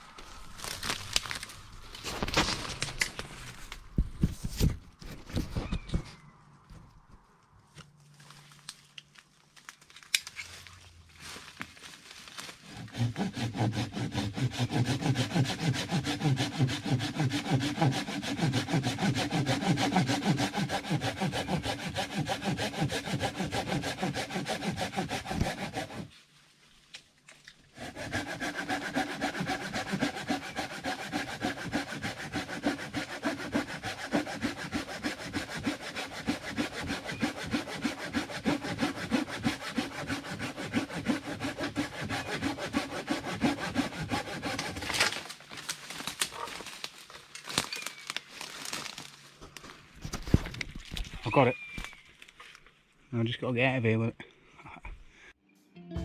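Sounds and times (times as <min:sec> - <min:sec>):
hand saw cutting tree limb: 0:00.3 - 0:03.2, 0:12.3 - 0:26.1, 0:27.7 - 0:47.8.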